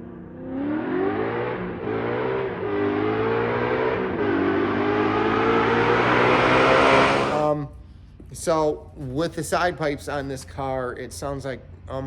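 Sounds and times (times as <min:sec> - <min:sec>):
car engine revving: 0:00.0 - 0:07.5.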